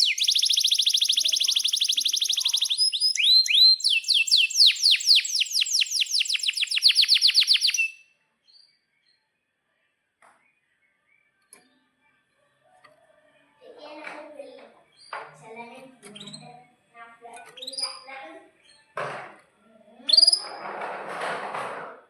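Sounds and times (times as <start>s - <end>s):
canary singing trills: 0.0s - 8.0s, 16.0s - 16.6s, 17.3s - 18.9s, 20.0s - 20.6s.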